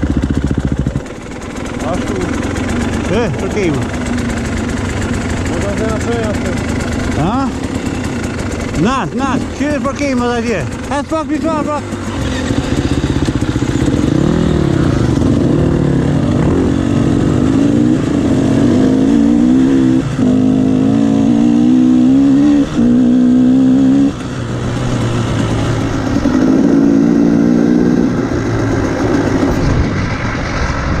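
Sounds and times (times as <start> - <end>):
motocross bike engine revving: 0.0 - 30.9.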